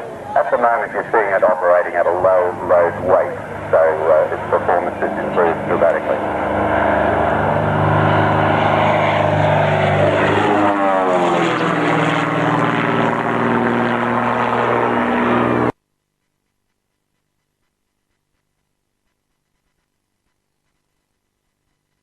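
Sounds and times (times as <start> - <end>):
propeller plane flying by: 0.0 - 15.8.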